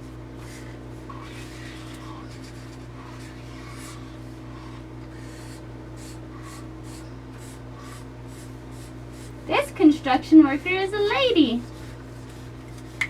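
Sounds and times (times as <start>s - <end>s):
marker scratching on paper: 0.4s - 9.3s.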